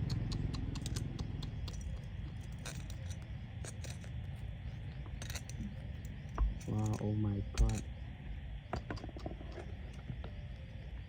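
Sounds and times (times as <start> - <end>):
small sharp clicks and crackles: 0.0 - 7.0.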